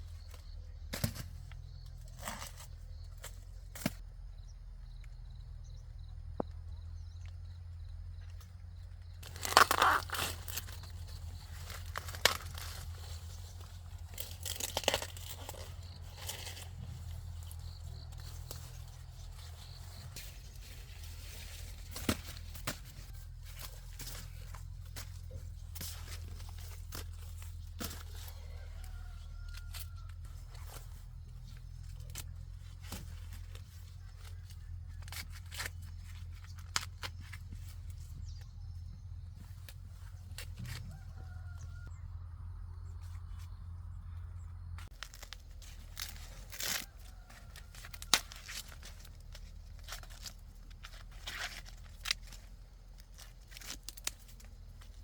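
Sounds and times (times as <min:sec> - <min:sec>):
dry corn leaves crackling and tearing: 0:00.2 - 0:04.0, 0:09.0 - 0:41.9, 0:44.8 - 0:55.0
rustling: 0:09.2 - 0:38.1, 0:44.8 - 0:55.0.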